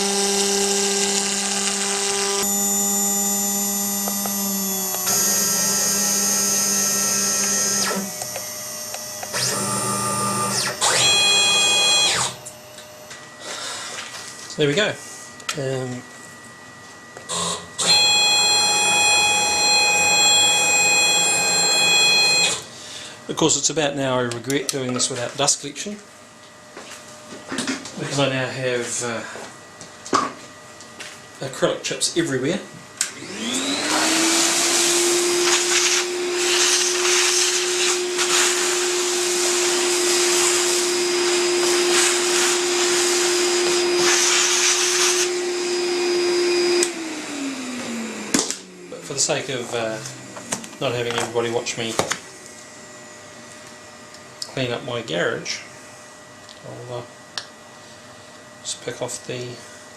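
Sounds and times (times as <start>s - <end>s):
router spindle whining while milling: 0.0s - 12.6s, 17.3s - 22.7s, 33.2s - 50.9s
shop vacuum running: 0.0s - 59.9s
vacuum sucking up chips: 33.2s - 51.0s.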